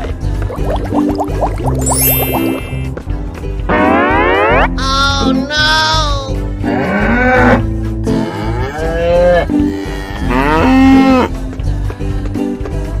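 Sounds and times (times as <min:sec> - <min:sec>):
background music: 0:00.0 - 0:13.0
cow mooing: 0:10.2 - 0:11.3.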